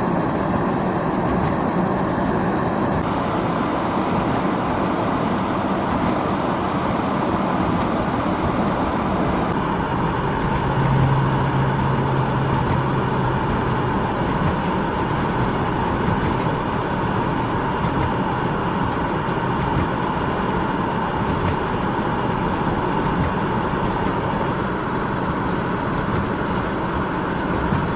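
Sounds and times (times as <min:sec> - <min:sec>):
blizzard wind: 0:00.0 - 0:27.9
low engine hum: 0:04.0 - 0:27.9
vehicle road noise: 0:07.0 - 0:27.9.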